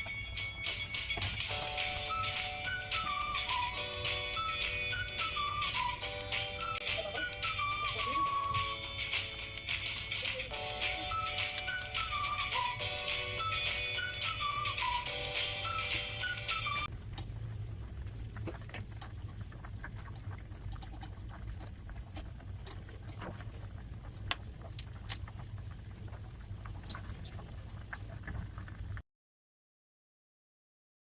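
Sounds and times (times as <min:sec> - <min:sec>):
background music: 0:00.0 - 0:16.9
small clicks and crackles: 0:16.9 - 0:29.0.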